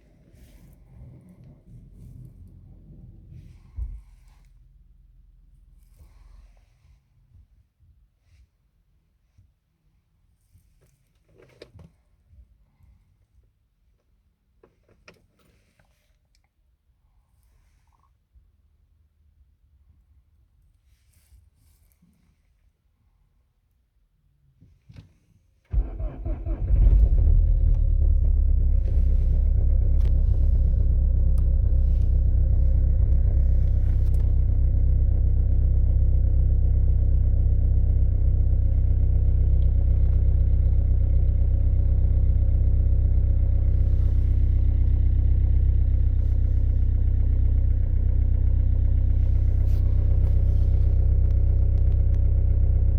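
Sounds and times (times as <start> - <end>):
diesel engine starting and idling: 25.7 - 52.9.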